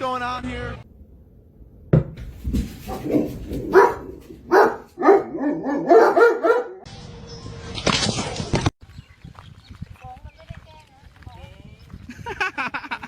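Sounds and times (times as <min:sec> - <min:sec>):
dog barking and yipping: 0:02.5 - 0:06.9.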